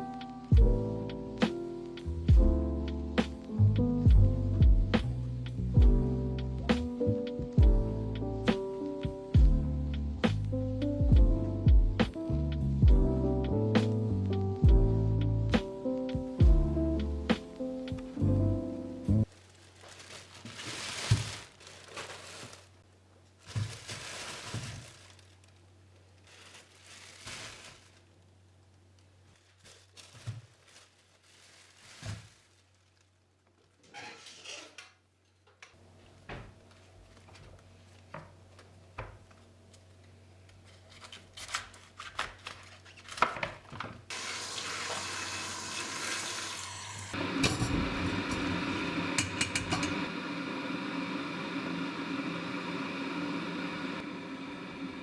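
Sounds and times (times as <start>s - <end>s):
dishes and utensils clinking: 47.3s - 50.1s.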